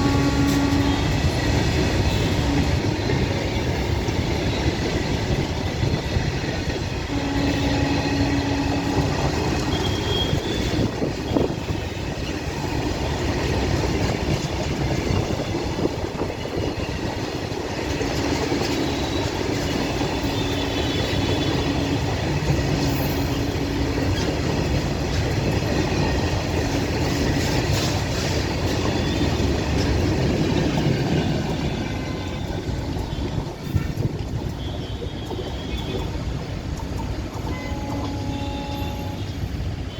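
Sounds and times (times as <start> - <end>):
short train whines: 0.0 - 12.7, 37.3 - 39.9
train wheels rumbling on rails: 0.0 - 39.9.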